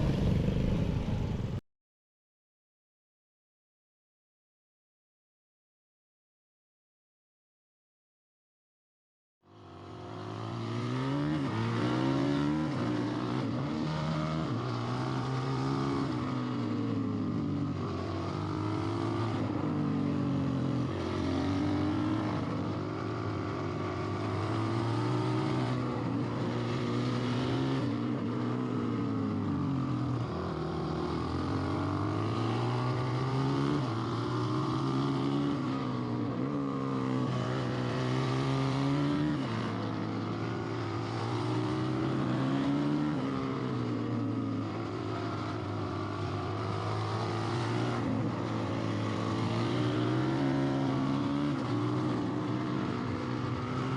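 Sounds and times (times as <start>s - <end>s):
off-road vehicle engine revving: 10.1s - 16.9s, 17.6s - 20.0s, 20.6s - 53.9s.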